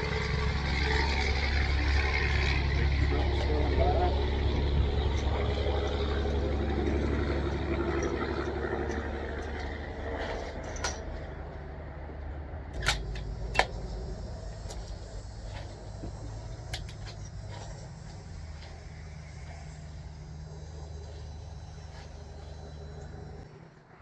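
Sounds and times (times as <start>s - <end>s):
trucks rumbling by: 0.0s - 24.0s
sharp clicks: 12.7s - 15.0s.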